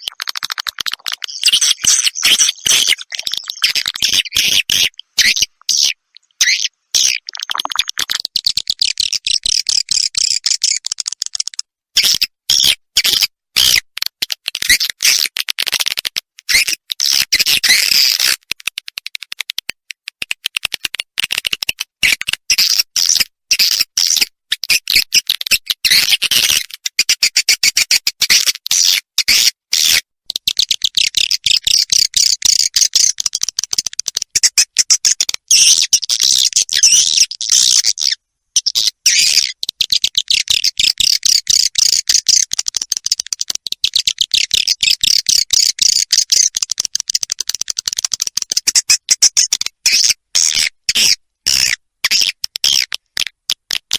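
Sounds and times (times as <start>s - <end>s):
swiftlet twittering chirps: 1.2s - 7.6s.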